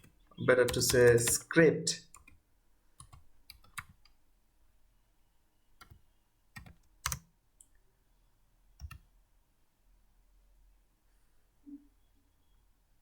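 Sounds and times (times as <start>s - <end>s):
computer keyboard key clicks: 6.6s - 7.2s.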